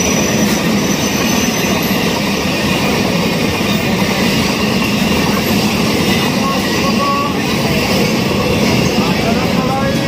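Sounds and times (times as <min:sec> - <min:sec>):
faint high squeal: 0:00.0 - 0:02.0
train wheels rumbling on rails: 0:00.0 - 0:10.0.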